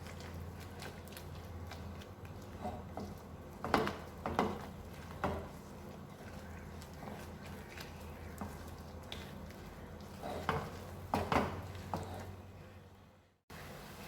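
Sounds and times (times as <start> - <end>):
spoon stirring sauce in a pan: 0.0 - 12.4
spoon scraping a pan: 10.1 - 12.4.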